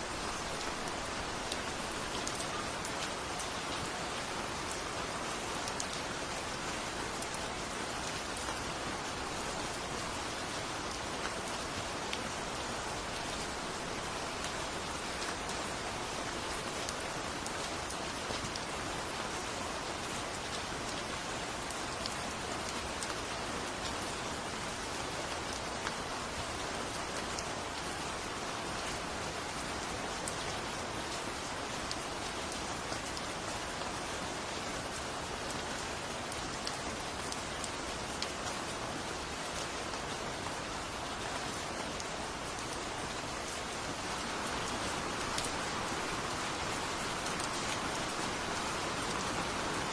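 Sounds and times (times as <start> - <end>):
raindrops ticking on a surface: 0.0 - 49.9
heavy rain hissing: 42.9 - 49.9.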